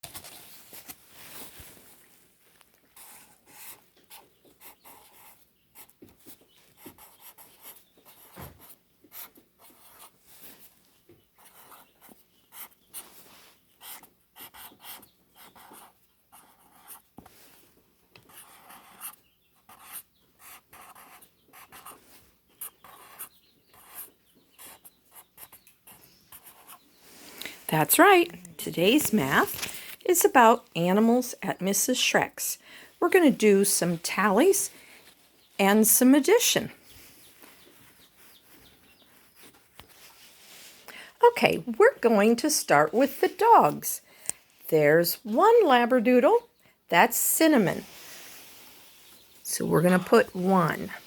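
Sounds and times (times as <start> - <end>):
pen scratching on paper: 3.0 - 6.0, 6.8 - 10.2, 11.4 - 13.0, 13.8 - 17.3, 18.2 - 22.0, 22.6 - 26.9.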